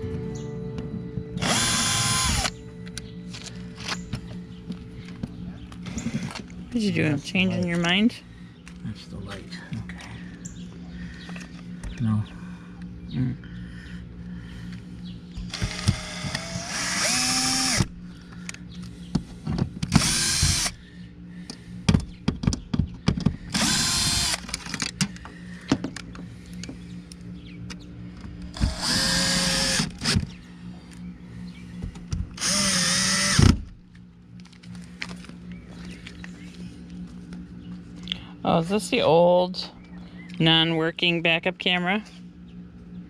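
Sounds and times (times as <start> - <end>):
power drill running: 1.4 - 2.6, 15.5 - 17.9, 19.9 - 20.8, 23.5 - 24.7, 28.6 - 30.2, 32.4 - 33.6.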